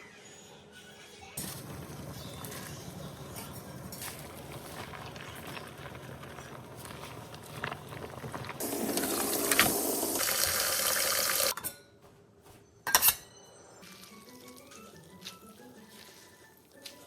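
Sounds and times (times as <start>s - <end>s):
water running from a tap: 8.5s - 11.5s.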